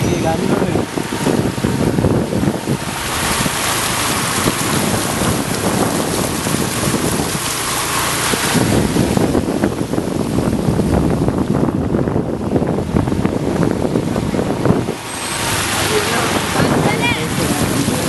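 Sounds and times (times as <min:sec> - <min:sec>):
wind buffeting microphone: 0:00.0 - 0:18.0
steady rushing hiss: 0:00.3 - 0:10.6.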